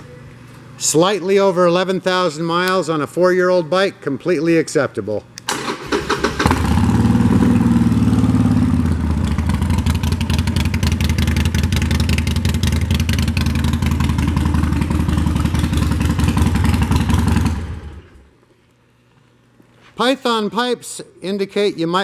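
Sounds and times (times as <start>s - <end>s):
motorcycle engine idling: 6.0s - 18.3s.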